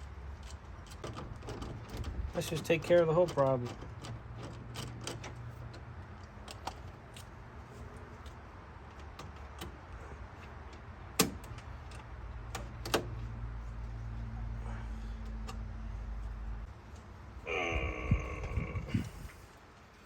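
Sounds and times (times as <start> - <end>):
steady low hum: 13.5 - 20.0.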